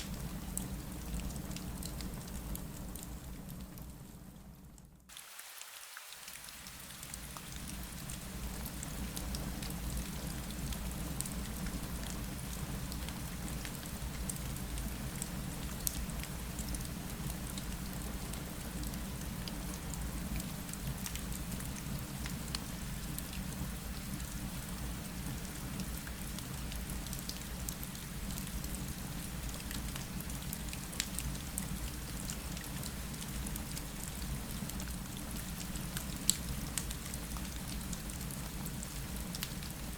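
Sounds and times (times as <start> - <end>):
rain hissing on a window: 0.0 - 39.9
sharp raindrop ticks: 30.8 - 31.7.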